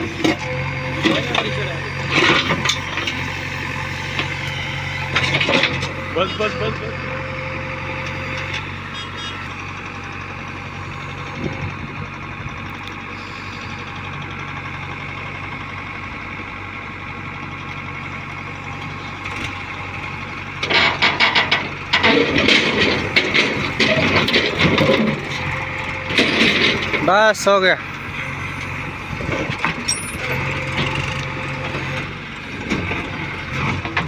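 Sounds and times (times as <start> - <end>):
diesel engine running at low revs: 0.0 - 34.0
loud irregular machinery noise: 0.0 - 34.0.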